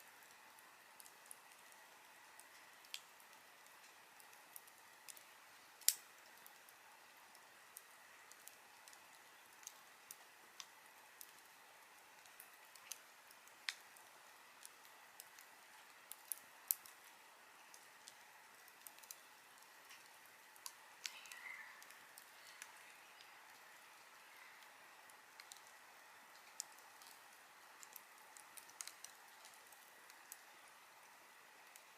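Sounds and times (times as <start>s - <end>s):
faint steady hiss: 0.0s - 31.9s
fire crackling and popping: 0.0s - 31.9s.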